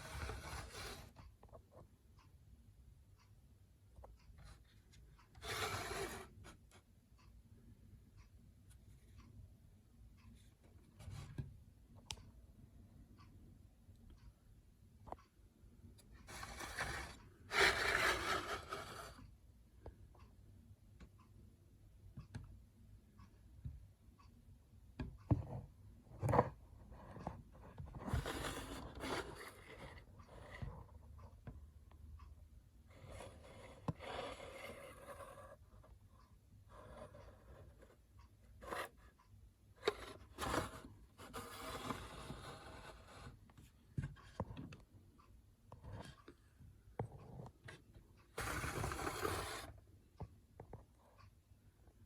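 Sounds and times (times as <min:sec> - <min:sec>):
scraping and rubbing: 0:16.3 - 0:19.2, 0:28.0 - 0:30.6, 0:48.4 - 0:49.7.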